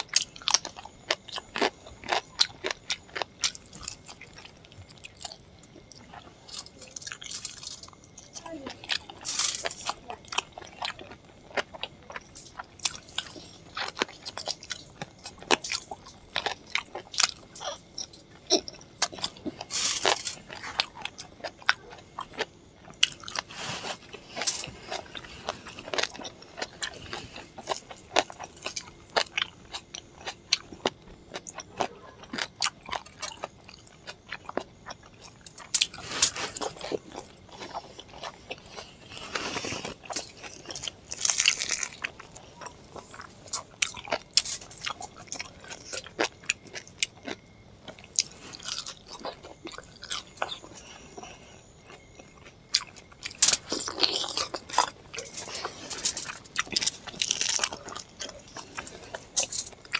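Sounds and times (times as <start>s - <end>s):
person chewing: 0.0s - 59.9s.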